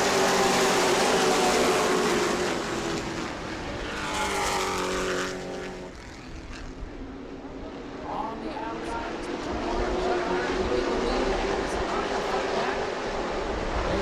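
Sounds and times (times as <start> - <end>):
race truck engines accelerating: 0.0 - 6.1.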